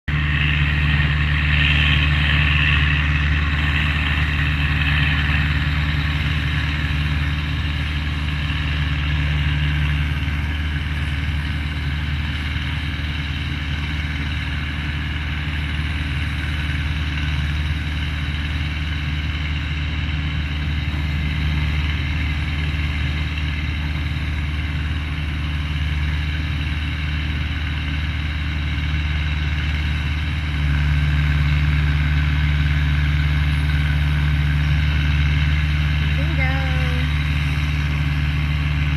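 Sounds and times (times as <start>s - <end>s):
tractor engine droning: 0.0s - 38.9s.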